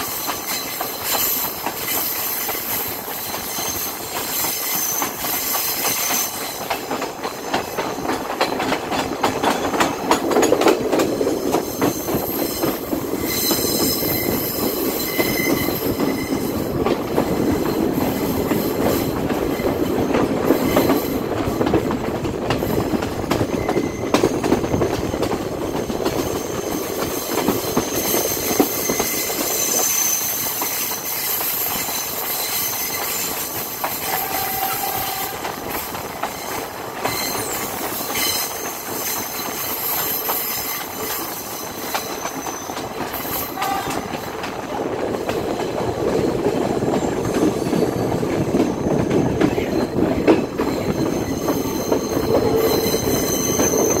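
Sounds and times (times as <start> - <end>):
train wheels rumbling: 0.0 - 54.0
high-pitched wheel squeal: 2.0 - 6.6, 11.5 - 16.7, 26.2 - 35.5, 36.4 - 44.2, 49.4 - 54.0.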